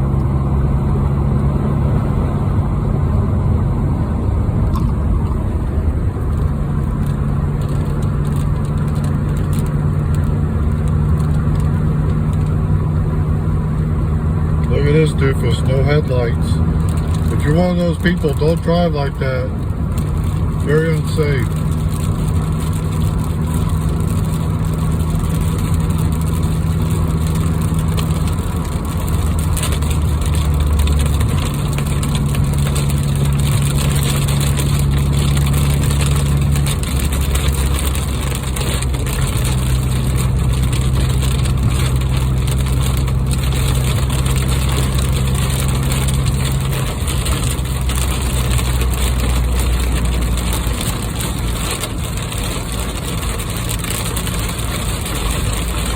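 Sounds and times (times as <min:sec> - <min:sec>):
car engine and road drone: 0:00.0 - 0:55.9
constant hiss: 0:20.4 - 0:21.7.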